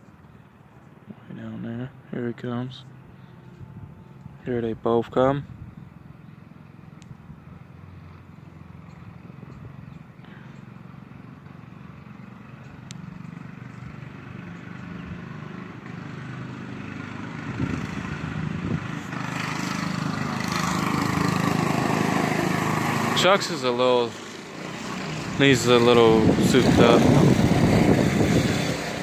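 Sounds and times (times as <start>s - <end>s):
mini bike engines approaching: 6.3s - 29.0s.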